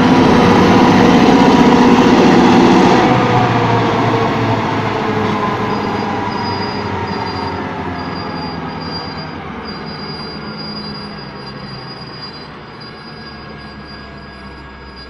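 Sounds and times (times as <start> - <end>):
freight train rumbling: 0.0 - 15.0
high-pitched wheel squeal: 5.0 - 15.0.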